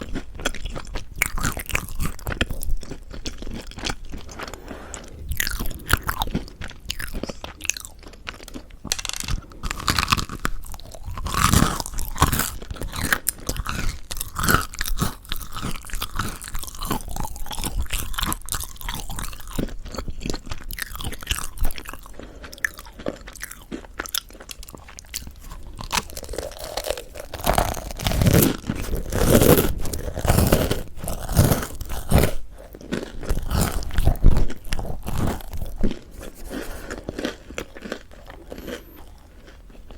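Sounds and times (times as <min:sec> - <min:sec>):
chewing crunchy bread: 0:00.0 - 0:39.9.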